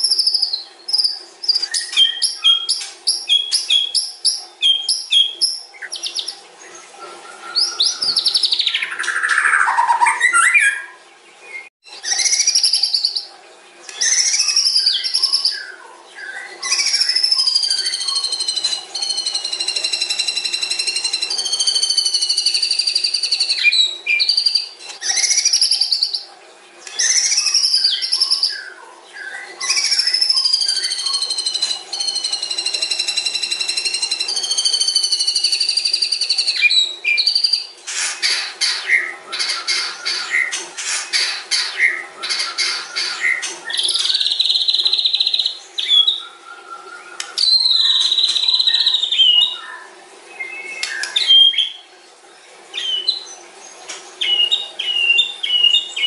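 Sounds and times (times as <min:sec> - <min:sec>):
songbird singing whistled phrases: 0:00.0 - 0:06.4, 0:07.2 - 0:11.0, 0:11.6 - 0:13.3, 0:13.9 - 0:40.6, 0:41.2 - 0:51.8, 0:52.8 - 0:53.4, 0:54.2 - 0:56.0.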